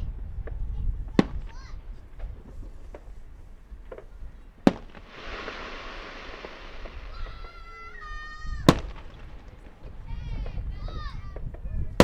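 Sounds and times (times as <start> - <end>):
firework bangs: 1.1 - 3.2, 3.9 - 10.6
firework whistle: 4.7 - 9.6
firework crackling hiss: 4.7 - 10.0.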